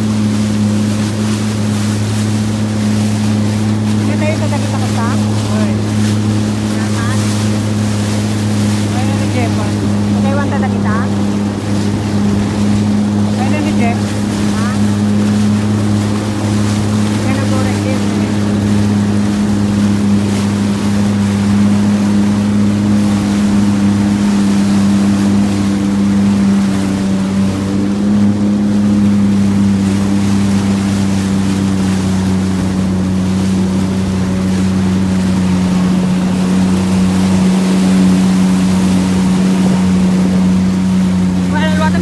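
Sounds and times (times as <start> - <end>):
jet ski engine running: 0.0 - 42.0
rushing water: 0.0 - 42.0
wind noise: 31.8 - 42.0.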